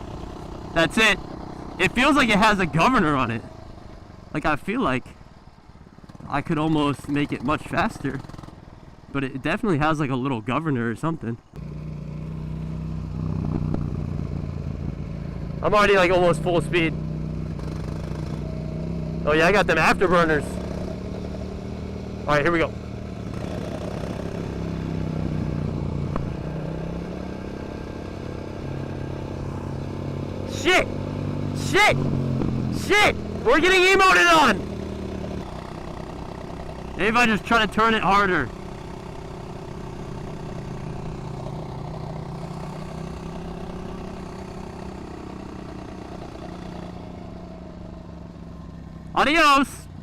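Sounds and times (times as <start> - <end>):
mini bike engine running: 11.6 - 14.8.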